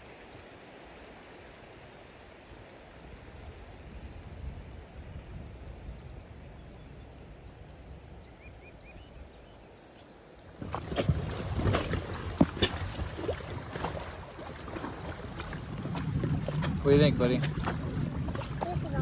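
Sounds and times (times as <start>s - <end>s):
river water rushing: 0.0s - 3.9s, 10.2s - 19.0s
water splashing against raft: 10.4s - 19.0s.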